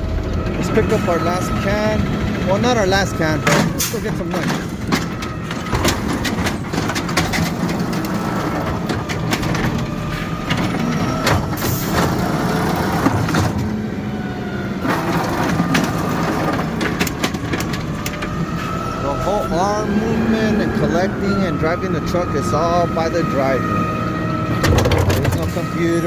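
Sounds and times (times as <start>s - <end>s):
truck engine running: 0.0s - 26.0s
trash can knocks and clatter: 3.5s - 9.9s, 10.5s - 13.8s, 15.2s - 18.2s, 24.6s - 25.6s.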